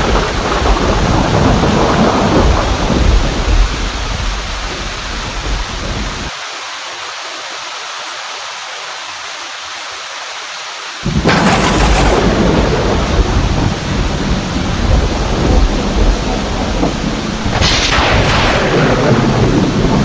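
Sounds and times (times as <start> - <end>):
loud thunderclap: 0.0 - 4.6, 11.0 - 20.0
thunder rumbling: 0.0 - 6.3, 11.0 - 20.0
heavy rain: 0.0 - 20.0.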